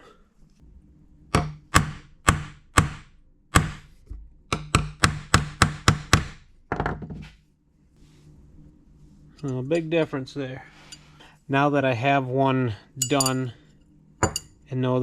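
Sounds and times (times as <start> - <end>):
hammer tapping metal: 4.5 - 6.4, 13.0 - 13.4, 14.2 - 14.5.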